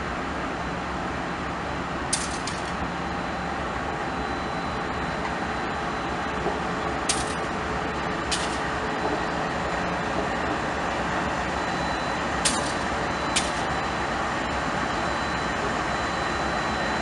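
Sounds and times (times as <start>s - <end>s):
train rumbling past: 4.8s - 17.0s.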